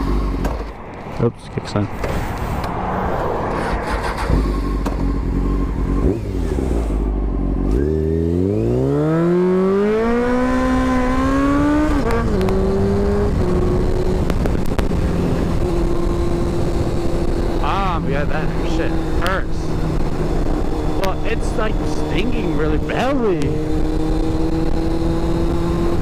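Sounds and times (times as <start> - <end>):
motorcycle engine revving: 0.0 - 1.0, 2.0 - 26.0.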